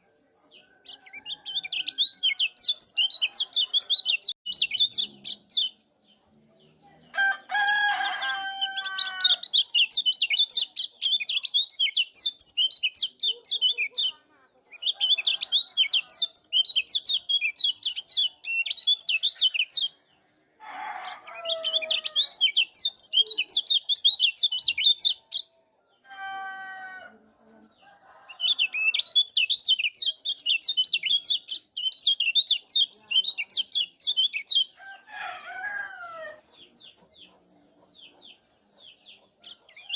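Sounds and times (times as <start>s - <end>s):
rooster crowing: 7.1s - 9.4s, 20.6s - 22.3s, 26.0s - 27.2s, 34.8s - 36.5s.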